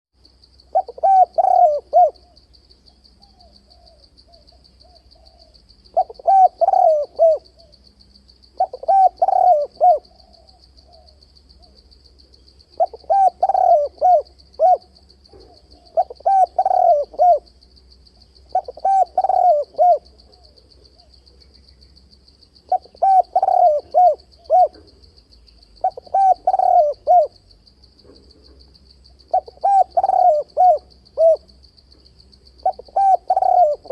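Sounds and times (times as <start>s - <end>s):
dove cooing: 0.7s - 2.4s, 3.2s - 7.8s, 8.6s - 11.7s, 12.8s - 17.5s, 18.5s - 21.1s, 22.7s - 24.9s, 25.8s - 27.4s, 29.3s - 31.6s, 32.6s - 33.9s.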